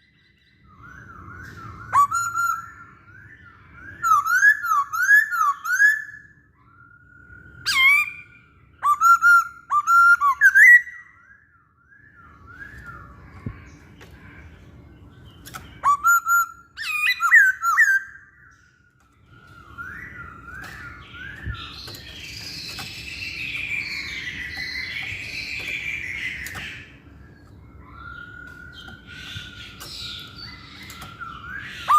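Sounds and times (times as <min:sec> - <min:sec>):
bird singing whistled phrases: 0:00.0 - 0:13.6, 0:15.5 - 0:31.9
bird warbling: 0:12.6 - 0:18.5, 0:19.2 - 0:31.9.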